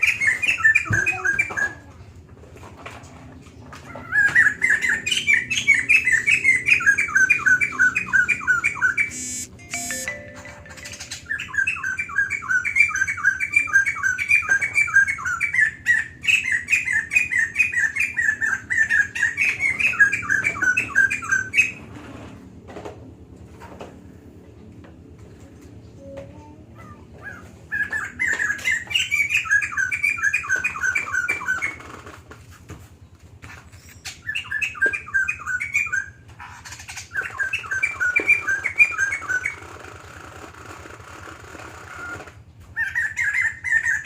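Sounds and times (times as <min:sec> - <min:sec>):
laughingthrush chattering song: 0:04.9 - 0:14.0.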